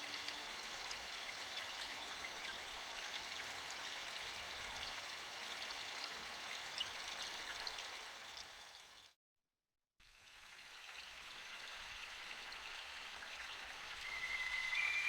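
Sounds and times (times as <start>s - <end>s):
steady rain hiss: 10.8s - 15.0s.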